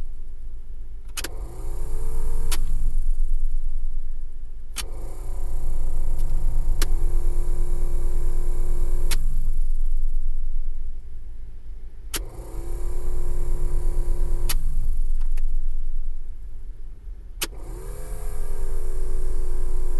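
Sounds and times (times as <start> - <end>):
steady low hum: 0.0 - 19.9
switch clicks: 9.0 - 9.3.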